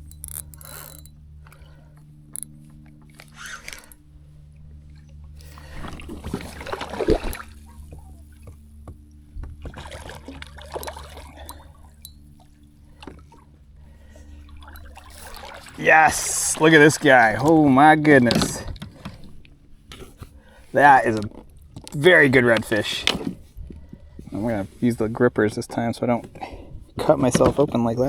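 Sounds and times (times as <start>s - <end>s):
steady low hum: 0.0s - 28.0s
water splashing and sloshing: 0.0s - 28.0s.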